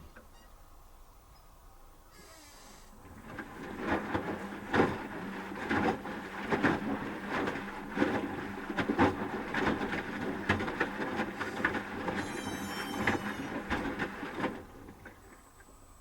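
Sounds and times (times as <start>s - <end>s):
washing machine tumbling laundry: 3.0s - 16.0s
high whine: 12.1s - 13.6s.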